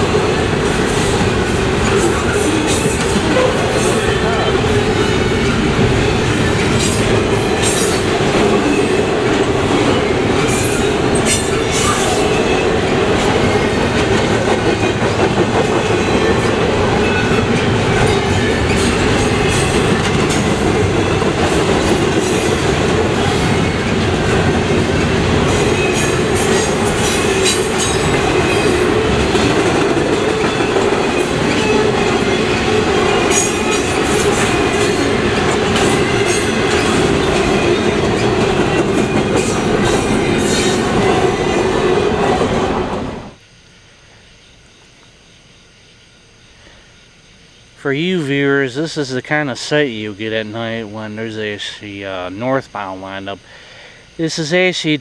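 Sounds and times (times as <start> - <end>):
high wheel squeal: 0.0 - 14.0
wheels clicking over rail joints: 0.0 - 42.6
freight train rumbling past: 0.0 - 55.0.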